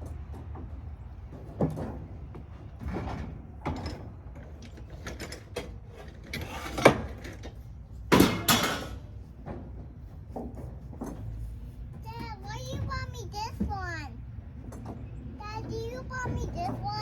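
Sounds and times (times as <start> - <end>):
metal parts knocking and scraping: 2.9 - 9.1
sharp metal clank: 8.1 - 9.0.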